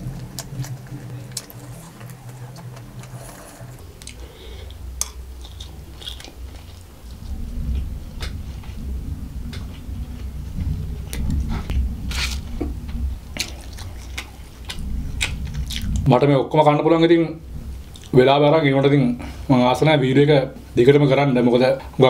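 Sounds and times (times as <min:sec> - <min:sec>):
chewing food: 0:00.0 - 0:04.2, 0:05.0 - 0:06.8, 0:13.4 - 0:16.1.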